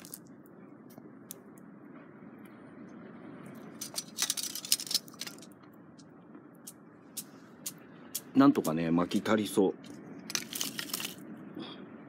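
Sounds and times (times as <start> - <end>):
fire clicks and crackles: 3.5 - 11.2.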